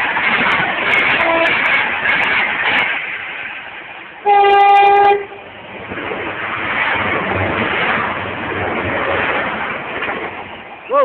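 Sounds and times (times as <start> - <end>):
train rumbling past: 0.0 - 11.0
train horn blast: 1.2 - 1.6, 4.2 - 5.4.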